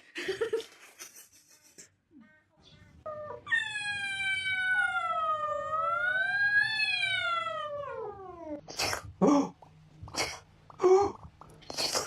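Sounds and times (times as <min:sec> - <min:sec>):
cat yowling: 0:03.1 - 0:08.6.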